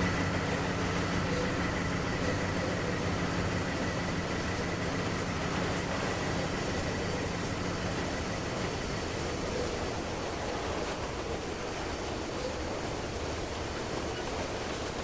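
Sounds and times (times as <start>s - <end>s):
freight cars rumbling: 0.0s - 10.0s
diesel locomotive engine drone: 0.0s - 15.0s.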